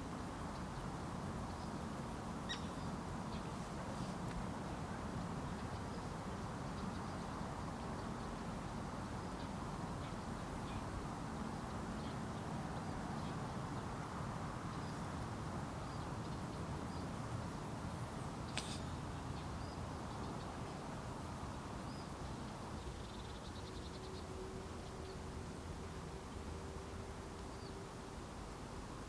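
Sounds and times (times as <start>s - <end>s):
low hiss and rumble: 0.0s - 29.0s.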